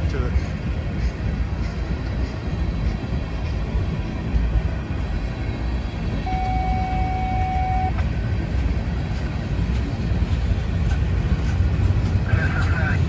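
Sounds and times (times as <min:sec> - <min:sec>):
freight train wheels rumbling: 0:00.0 - 0:13.0
steady high tone: 0:05.3 - 0:08.1.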